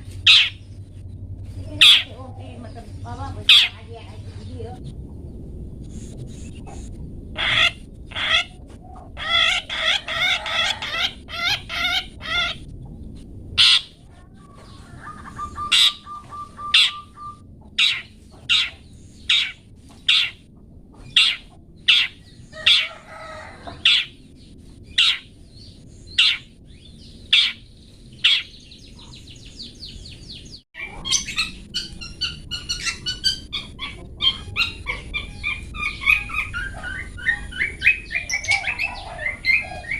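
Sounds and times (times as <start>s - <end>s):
bird rapid trilling: 0.0s - 0.7s, 1.7s - 4.0s, 7.4s - 12.6s, 13.6s - 20.5s, 21.1s - 24.2s, 26.1s - 26.5s, 27.3s - 39.9s
bird sharp calls: 0.0s - 0.7s, 1.8s - 4.0s, 13.6s - 24.2s, 24.9s - 25.3s, 26.1s - 39.9s
bird dense chattering: 0.0s - 5.6s, 6.3s - 39.9s.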